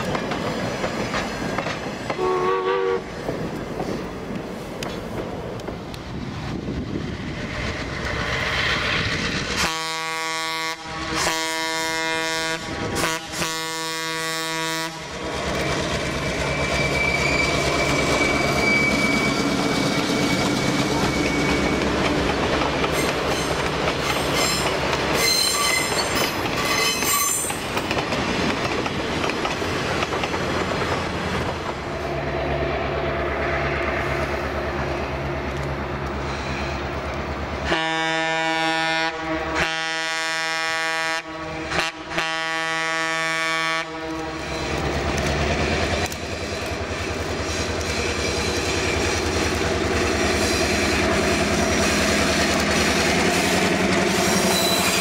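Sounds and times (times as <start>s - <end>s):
train wheels clacking over rail joints: 0.0s - 2.5s, 15.2s - 31.9s, 44.0s - 55.0s
locomotive horn blasts: 2.2s - 3.1s, 9.6s - 15.2s, 37.7s - 44.5s
high wheel squeal: 16.0s - 22.0s, 22.9s - 27.6s, 54.1s - 55.0s.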